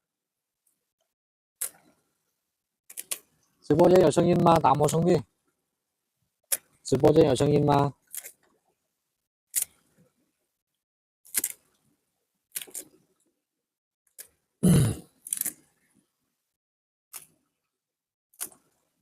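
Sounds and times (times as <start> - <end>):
sharp clicks and scrapes: 0.7 - 2.0, 2.9 - 3.6, 6.5 - 6.8, 8.0 - 8.6, 9.5 - 10.1, 11.3 - 11.8, 12.5 - 13.1, 15.2 - 16.0, 17.1 - 17.4, 18.4 - 18.9.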